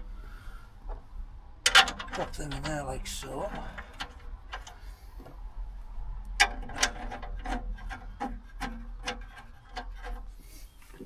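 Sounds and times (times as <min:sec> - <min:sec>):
metal nuts and bolts clinking: 0:01.6 - 0:04.8.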